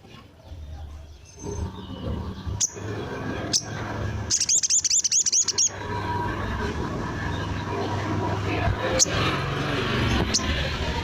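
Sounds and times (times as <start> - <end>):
bird chips and trill: 1.2 - 5.8.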